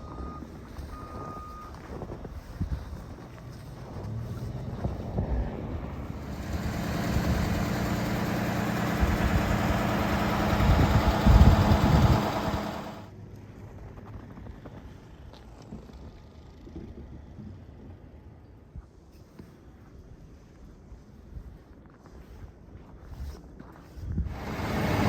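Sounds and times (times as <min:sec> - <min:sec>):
vehicle engine running: 0:02.3 - 0:13.1, 0:24.3 - 0:25.0.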